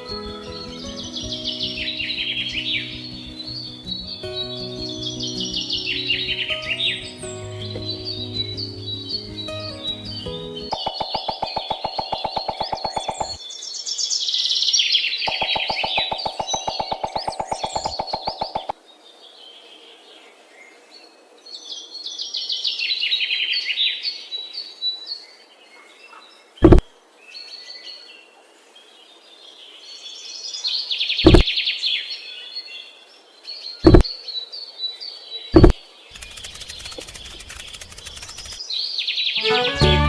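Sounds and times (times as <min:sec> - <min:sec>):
small birds chirping and trilling: 0:00.0 - 0:39.4
rapid pulsing buzz: 0:36.1 - 0:38.6.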